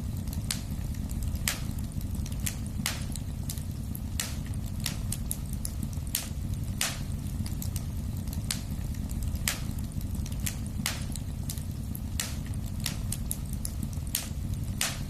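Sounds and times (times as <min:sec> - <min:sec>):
fire crackling and popping: 0:00.0 - 0:15.0
fire low rumble: 0:00.0 - 0:15.0.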